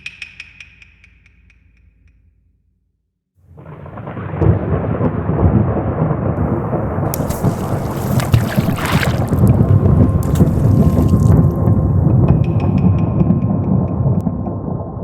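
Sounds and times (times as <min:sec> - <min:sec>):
rain hissing: 0:06.8 - 0:12.0.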